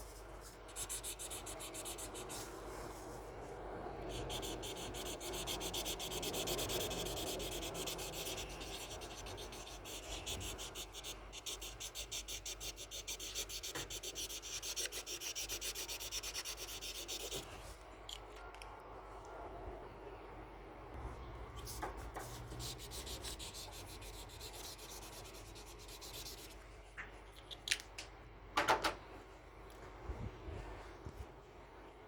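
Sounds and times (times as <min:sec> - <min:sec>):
scratchy rubbing on paper: 0:00.4 - 0:03.2, 0:04.1 - 0:17.5, 0:21.6 - 0:26.6.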